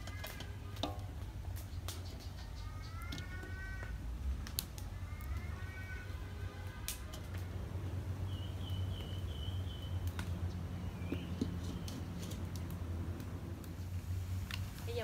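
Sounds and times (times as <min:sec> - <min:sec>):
bird chirping: 0:01.6 - 0:03.7, 0:08.2 - 0:12.4.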